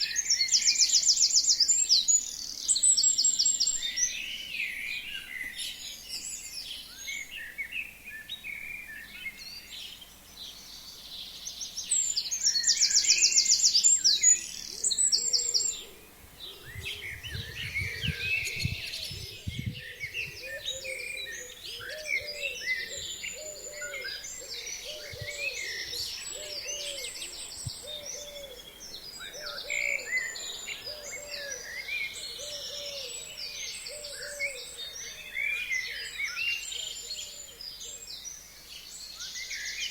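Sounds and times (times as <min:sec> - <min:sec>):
songbirds chirping and trilling: 0:00.0 - 0:39.9
lower bird call: 0:12.4 - 0:38.0.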